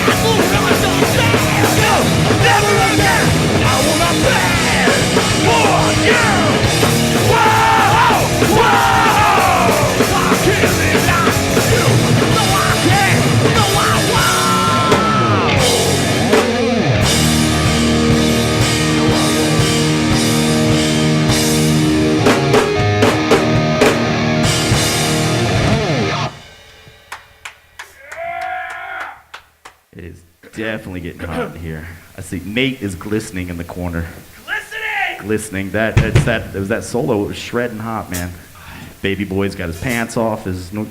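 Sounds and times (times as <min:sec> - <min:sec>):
electric guitar solo bending: 0:00.0 - 0:26.4
punk band playing live: 0:00.0 - 0:27.7.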